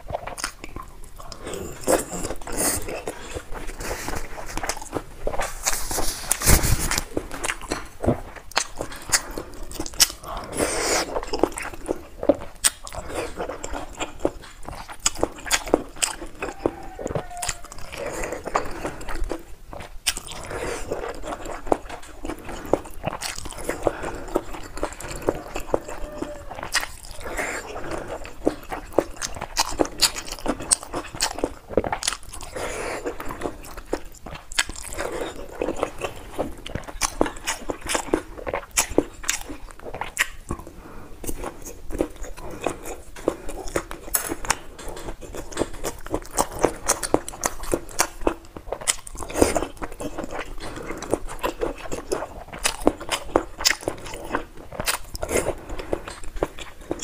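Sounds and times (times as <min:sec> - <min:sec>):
person chewing with mouth smacks: 0:00.0 - 0:57.0.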